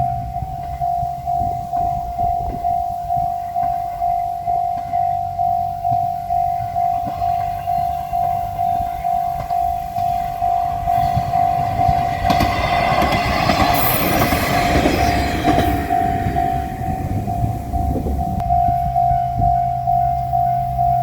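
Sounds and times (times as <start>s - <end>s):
diesel railcar passing: 0.0s - 21.0s
level crossing bell ringing: 0.0s - 21.0s
train wheel clicks: 6.9s - 19.4s.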